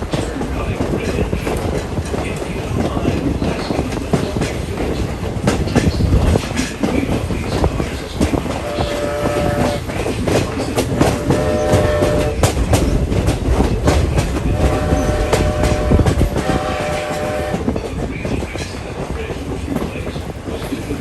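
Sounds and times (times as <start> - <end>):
train coach rumble: 0.0 - 21.0
wheels clacking over rail joints: 0.0 - 21.0
steam whistle blasts: 8.6 - 9.8, 11.0 - 12.4, 14.6 - 17.6.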